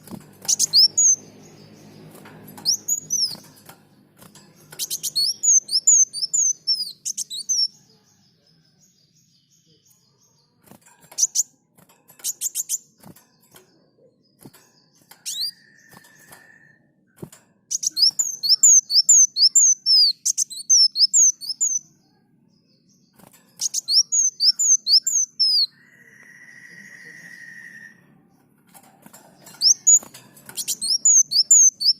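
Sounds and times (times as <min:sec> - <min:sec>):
sunbird singing: 0:00.0 - 0:10.6, 0:17.7 - 0:28.5, 0:29.2 - 0:31.9.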